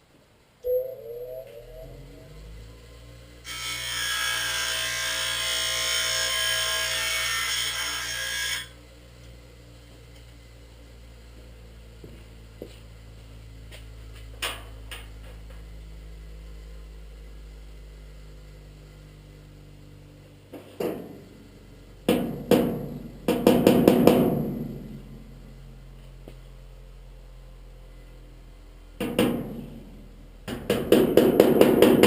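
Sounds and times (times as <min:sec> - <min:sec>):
steady low hum: 0:00.4 - 0:03.5, 0:08.7 - 0:30.5
power tool grinding metal: 0:03.4 - 0:08.8.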